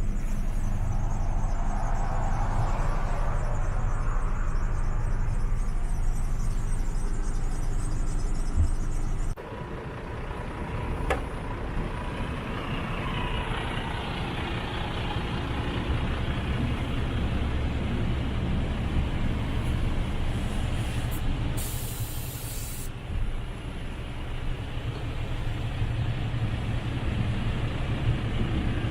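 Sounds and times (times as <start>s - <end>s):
diesel truck engine rumbling: 0.0s - 28.9s
air brake hiss: 20.8s - 22.9s.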